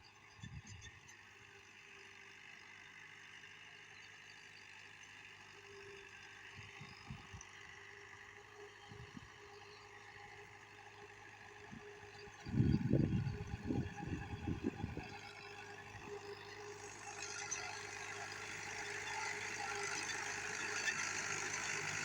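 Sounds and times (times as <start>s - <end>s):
engine idling: 12.5s - 22.0s.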